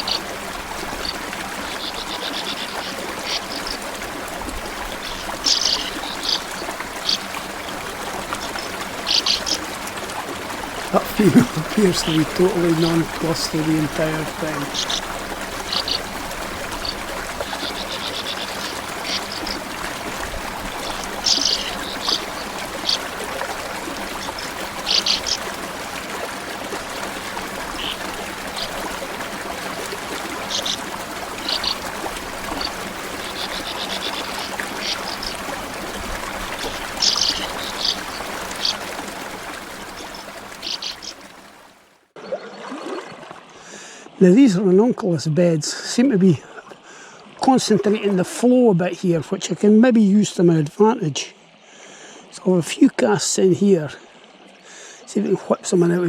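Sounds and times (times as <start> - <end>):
small stream running: 0.0 - 56.0
high bird chirps and trills: 5.0 - 7.3, 14.6 - 16.1, 21.2 - 23.1, 24.2 - 25.4, 31.4 - 31.8, 36.6 - 38.9, 40.0 - 41.2.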